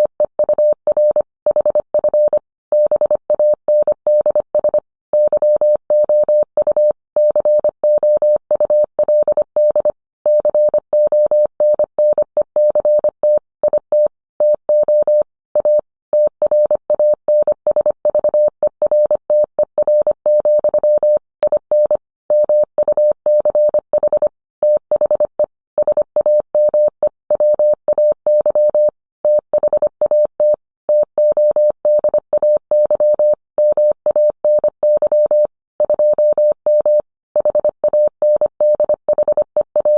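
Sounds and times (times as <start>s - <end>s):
morse code tone: 27.4s - 39.9s.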